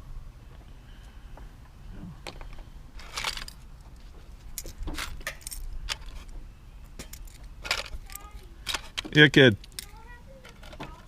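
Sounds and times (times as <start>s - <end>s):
metal jewelry clinking: 3.0s - 3.8s.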